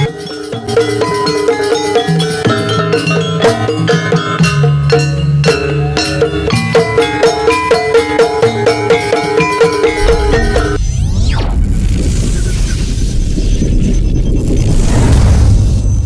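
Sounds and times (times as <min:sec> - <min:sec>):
struck metal percussion ringing: 0:00.0 - 0:10.8
drum strokes: 0:00.0 - 0:10.9.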